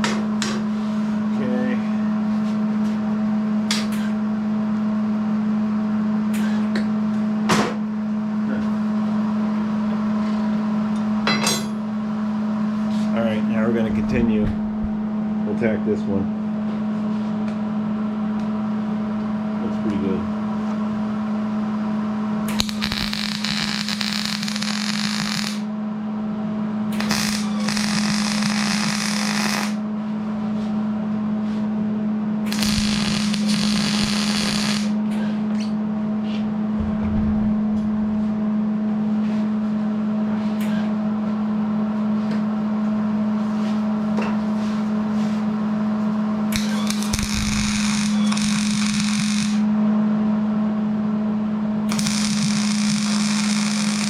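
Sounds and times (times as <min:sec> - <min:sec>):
steady machine hum: 0:00.0 - 0:54.0
low hum: 0:13.4 - 0:16.5, 0:32.4 - 0:35.0, 0:36.4 - 0:40.0, 0:46.5 - 0:49.7
loud knock: 0:13.9 - 0:15.2, 0:36.7 - 0:38.4
arc welding crackling hiss: 0:22.5 - 0:25.7, 0:27.0 - 0:29.8, 0:32.5 - 0:35.0, 0:46.6 - 0:49.6, 0:51.9 - 0:54.0.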